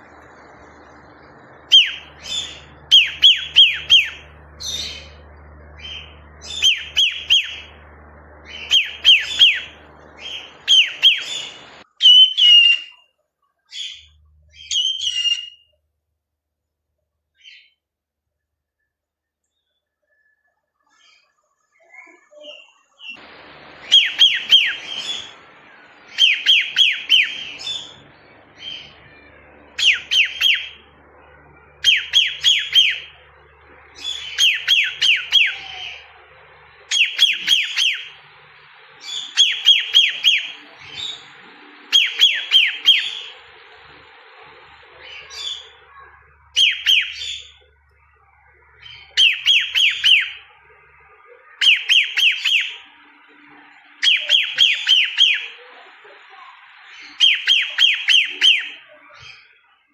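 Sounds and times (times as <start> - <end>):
bird chirp: 0.0 - 15.8, 19.4 - 59.9
cockatiel whistling: 1.6 - 5.2, 5.8 - 7.8, 8.5 - 12.9, 23.6 - 25.4, 26.1 - 30.9, 31.6 - 33.2, 34.0 - 36.1, 36.9 - 38.2, 39.0 - 41.2, 41.8 - 43.4, 45.0 - 47.6, 48.9 - 50.5, 51.6 - 52.9, 54.0 - 55.6, 57.1 - 58.8.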